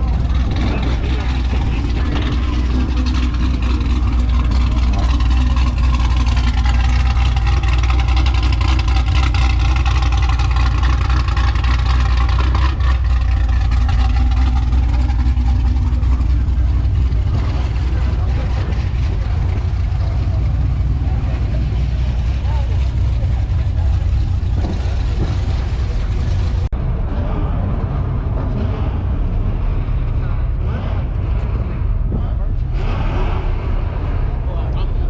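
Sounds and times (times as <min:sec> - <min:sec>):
vehicle engine rumbling: 0:00.0 - 0:35.0.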